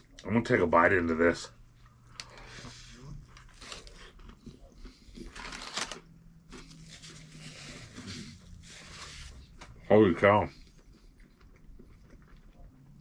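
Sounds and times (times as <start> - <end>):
crunching and chewing: 1.7 - 9.0, 10.5 - 13.0.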